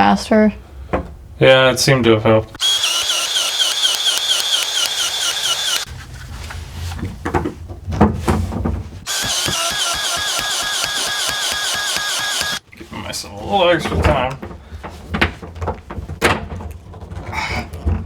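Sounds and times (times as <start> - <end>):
pipe expansion tool motor whine: 2.6 - 5.9, 9.1 - 12.6.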